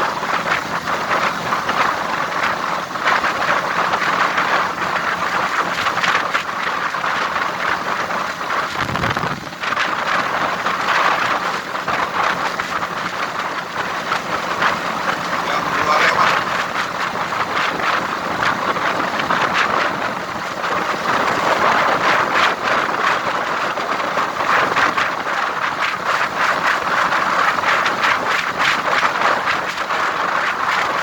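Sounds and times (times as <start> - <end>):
wind and road noise in vehicle: 0.0 - 31.0
low rumble: 8.5 - 20.6.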